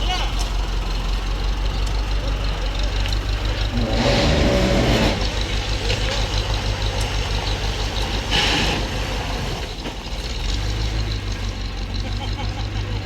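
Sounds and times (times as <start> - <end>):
engine running with low beat: 0.0 - 13.0
short hissing: 8.3 - 9.0.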